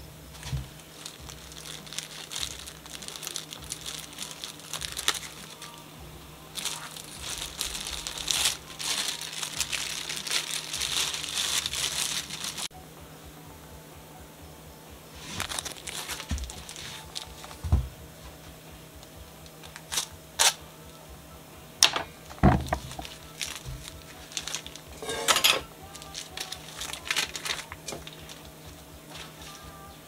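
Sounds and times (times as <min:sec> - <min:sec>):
packaging crinkling: 0:00.3 - 0:05.8, 0:06.5 - 0:12.7, 0:15.2 - 0:17.7, 0:19.4 - 0:20.6, 0:21.9 - 0:29.6.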